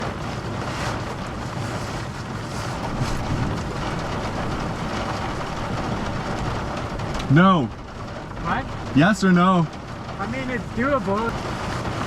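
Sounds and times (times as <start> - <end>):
wind noise on microphone: 0.0 - 7.2
low rumble: 0.0 - 12.0.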